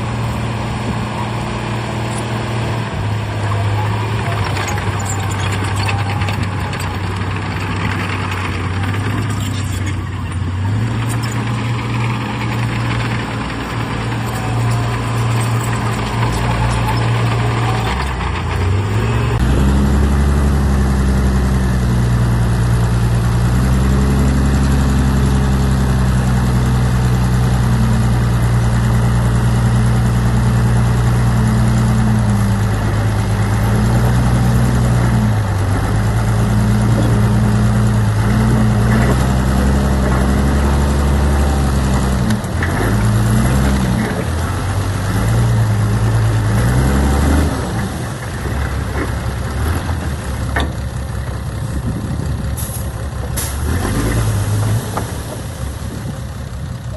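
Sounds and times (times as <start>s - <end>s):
heavy diesel engine running: 0.0s - 56.9s.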